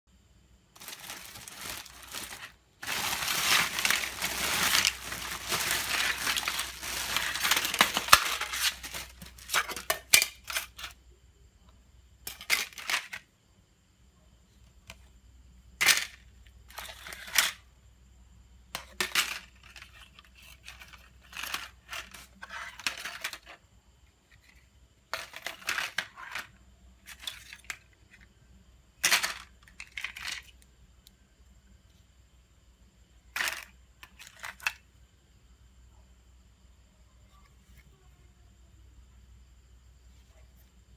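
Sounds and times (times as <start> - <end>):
rustling and scraping on smartphone: 0.8 - 9.8, 19.6 - 23.4.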